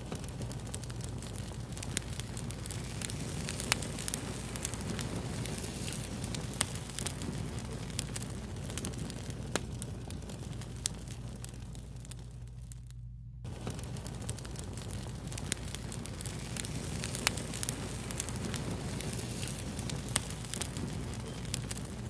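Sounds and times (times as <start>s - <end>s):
low hiss and rumble: 0.0s - 22.0s
sharp pops from fire: 0.0s - 22.0s
wood fire crackling: 0.0s - 22.0s.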